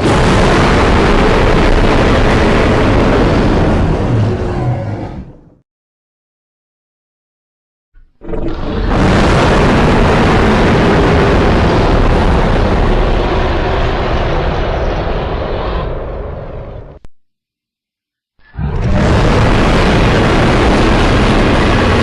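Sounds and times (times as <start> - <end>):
monster roar: 0.0 - 5.5, 18.4 - 21.0.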